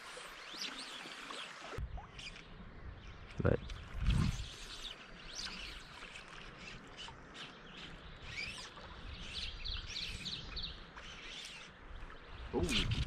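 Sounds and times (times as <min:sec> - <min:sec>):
songbirds singing and chirping: 0:00.2 - 0:13.0.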